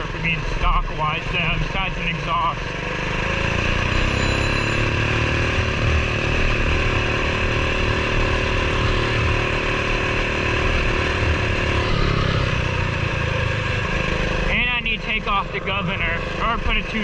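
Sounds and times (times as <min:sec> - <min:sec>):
small engine running steadily: 0:00.0 - 0:17.0.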